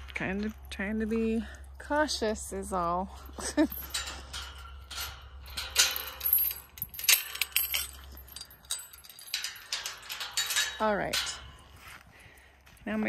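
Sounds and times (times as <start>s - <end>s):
sharp metallic clinks: 0.4s - 12.5s
rustling and scraping: 3.0s - 12.3s.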